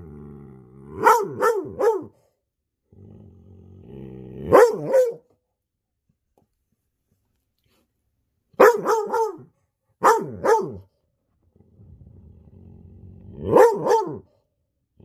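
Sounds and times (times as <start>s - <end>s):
dog barking: 1.0s - 2.2s, 4.4s - 5.3s, 8.6s - 10.9s, 13.4s - 14.4s.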